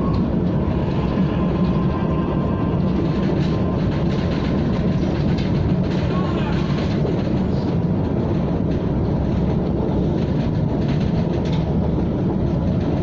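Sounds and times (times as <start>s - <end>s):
faint train whine: 0.0s - 13.0s
train wheels rumbling on rail: 0.0s - 13.0s.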